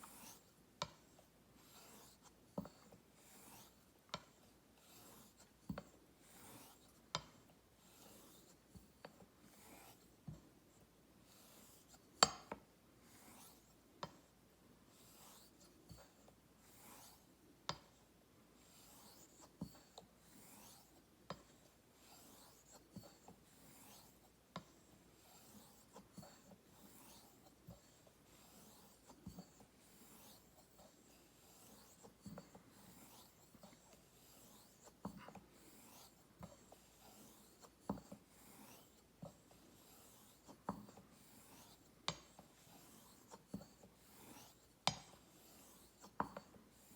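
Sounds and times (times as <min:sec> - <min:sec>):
razor scraping on whetstone: 0:00.0 - 0:00.5, 0:01.6 - 0:05.4, 0:06.2 - 0:06.9, 0:07.8 - 0:08.6, 0:13.1 - 0:13.7, 0:15.0 - 0:16.0, 0:16.6 - 0:17.3, 0:18.7 - 0:21.0, 0:22.0 - 0:24.2, 0:25.2 - 0:46.9.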